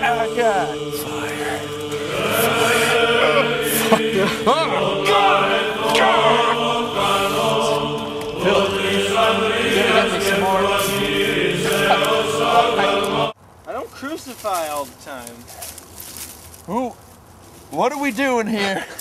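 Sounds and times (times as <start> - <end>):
chanted choral music: 0.0 - 13.4
steady held drone: 0.0 - 13.4.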